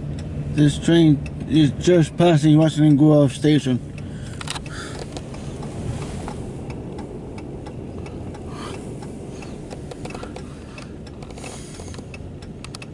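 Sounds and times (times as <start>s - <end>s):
sharp clicks: 3.9s - 5.7s, 6.3s - 12.9s.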